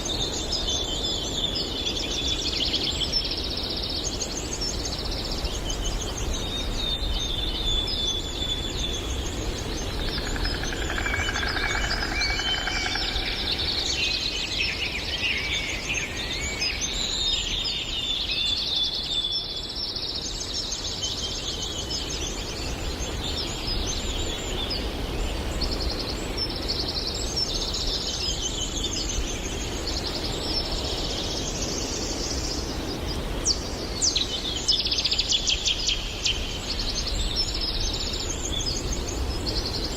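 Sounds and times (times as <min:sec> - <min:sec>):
birds singing and chirping: 0:00.0 - 0:39.9
fast dry bird trill: 0:09.8 - 0:14.4.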